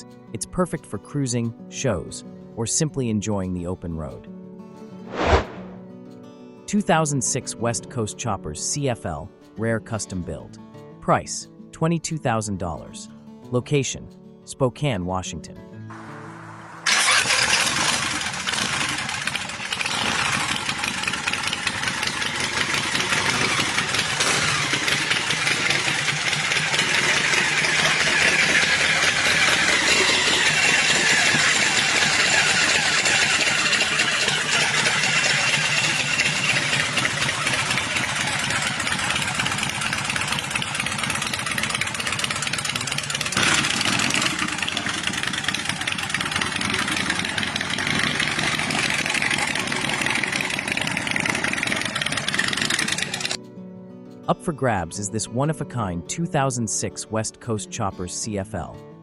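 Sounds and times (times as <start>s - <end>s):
motorcycle engine running: 15.9s - 53.4s.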